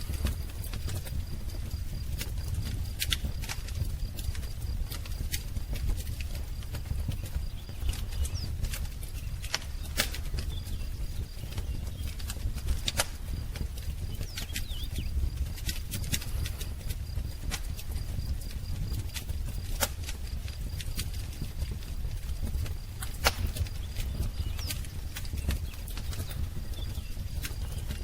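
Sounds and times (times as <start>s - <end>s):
wood fire crackling: 0.0s - 28.0s
faint bird chirps: 14.0s - 15.3s, 23.4s - 28.0s.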